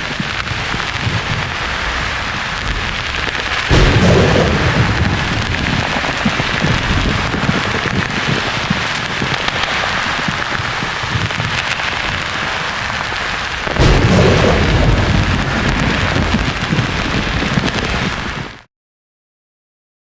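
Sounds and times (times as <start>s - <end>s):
thunder rumbling: 0.0s - 18.6s.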